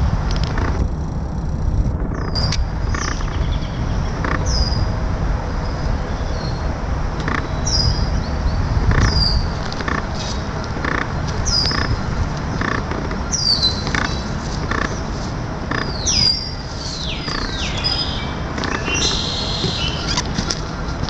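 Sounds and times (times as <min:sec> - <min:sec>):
low background rumble: 0:00.0 - 0:21.0
birds whistling falling notes: 0:07.4 - 0:10.5, 0:11.3 - 0:12.0, 0:13.2 - 0:15.1, 0:15.8 - 0:20.4.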